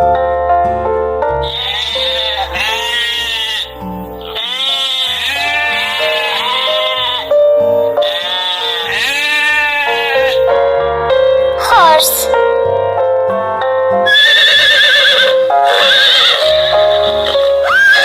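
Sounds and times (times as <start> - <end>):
background music: 0.0 - 18.0
long wavering bleats: 1.4 - 10.5, 14.1 - 18.0.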